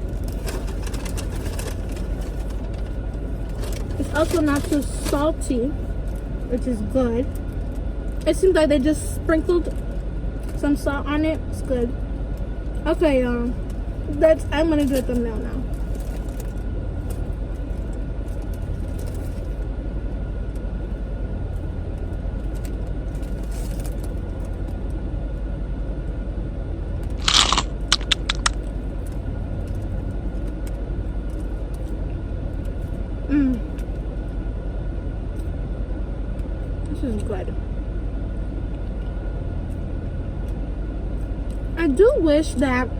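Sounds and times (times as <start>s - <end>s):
steady low rumble: 0.0s - 42.9s
food crunching: 27.1s - 29.8s
sharp clicks: 27.2s - 28.7s.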